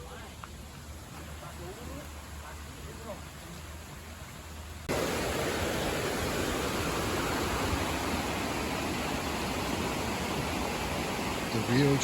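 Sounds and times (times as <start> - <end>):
rushing river water: 0.0 - 12.0.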